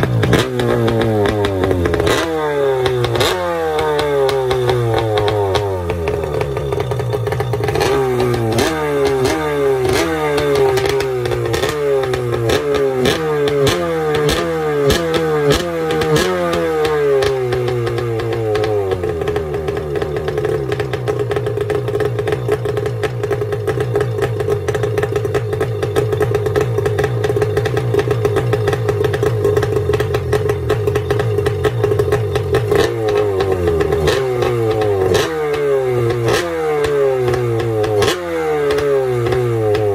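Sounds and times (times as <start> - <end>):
two-stroke engine revving: 0.0 - 39.9.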